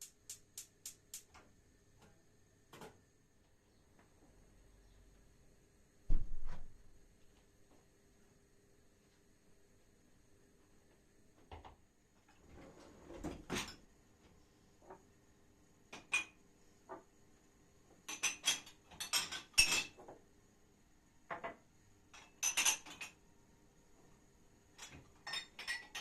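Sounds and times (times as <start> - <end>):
dishes and cutlery clinking: 18.0 - 20.0, 22.2 - 23.2, 24.8 - 26.0.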